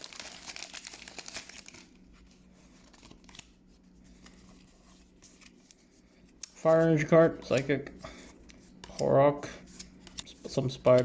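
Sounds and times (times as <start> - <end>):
foil wrapper tearing and crinkling: 0.0 - 1.9.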